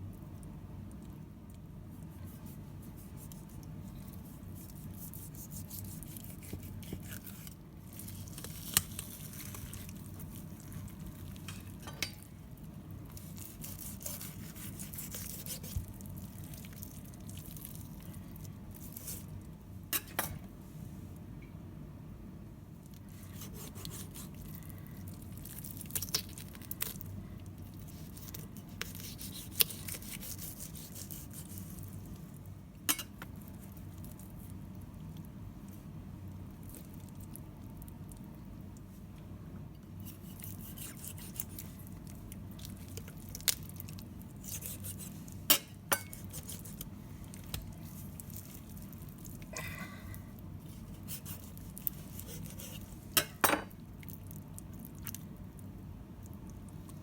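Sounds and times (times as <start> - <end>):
knife cutting raw chicken: 4.7 - 7.6, 13.2 - 15.9, 23.4 - 24.3, 28.0 - 31.6, 40.1 - 41.7, 46.0 - 46.9, 50.8 - 53.3.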